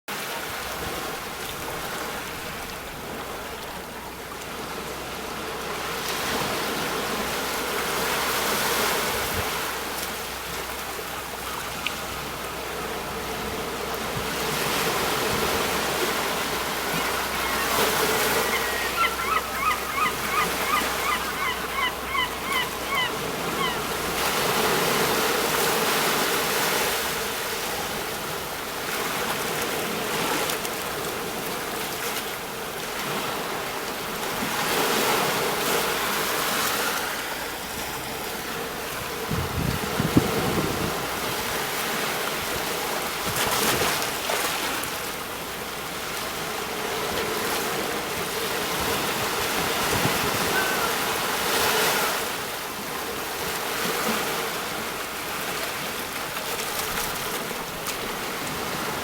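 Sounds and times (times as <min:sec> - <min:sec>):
sea waves breaking on shore: 0:00.1 - 0:59.0
bird calling in short notes: 0:17.4 - 0:23.8, 0:50.4 - 0:51.2.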